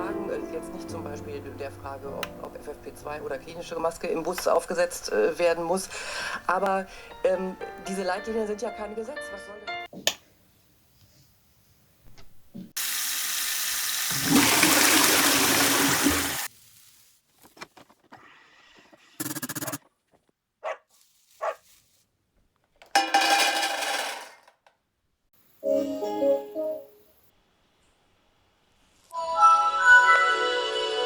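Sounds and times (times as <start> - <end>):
water rushing: 14.1 - 16.5.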